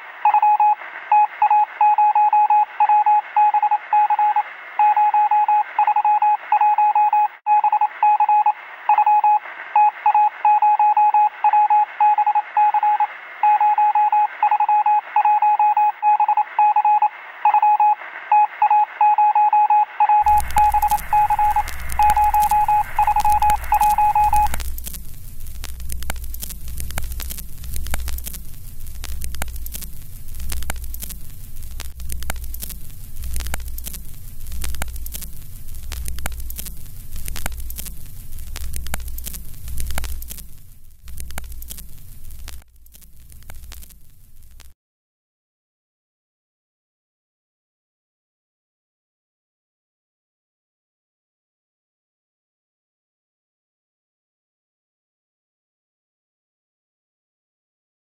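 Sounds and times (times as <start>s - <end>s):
pulsing beep tone: 0.2s - 24.6s
low rumble with hissing static: 20.2s - 44.7s.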